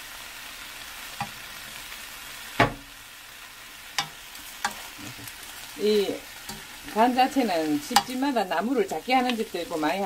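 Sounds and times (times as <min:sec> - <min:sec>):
greens sizzling in oil: 0:00.0 - 0:10.0.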